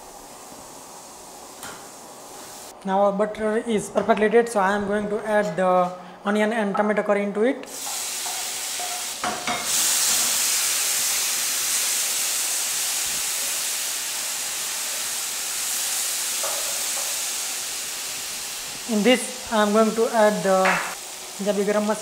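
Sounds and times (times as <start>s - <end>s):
onion and tomato sizzling in butter: 0.0s - 2.8s, 7.7s - 22.0s.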